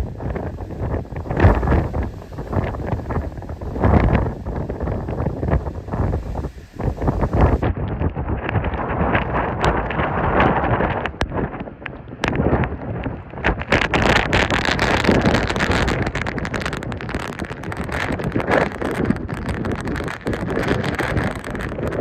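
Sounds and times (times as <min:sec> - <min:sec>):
sharp crackles: 0:00.0 - 0:07.6
strong wind buffeting microphone: 0:00.0 - 0:22.0.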